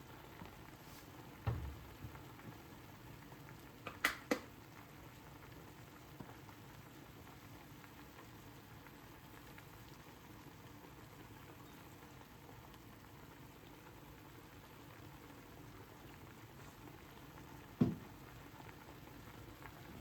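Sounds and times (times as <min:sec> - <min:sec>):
faint liquid bubbling: 0:00.0 - 0:20.0
dull thump: 0:01.4 - 0:01.8, 0:17.8 - 0:18.0.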